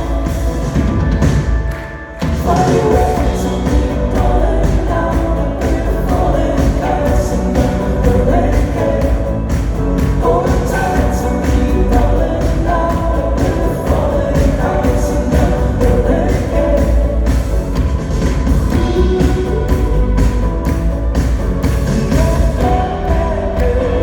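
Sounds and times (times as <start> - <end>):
live band playing: 0.0 - 24.0
lead singer singing: 2.2 - 17.8, 21.6 - 24.0.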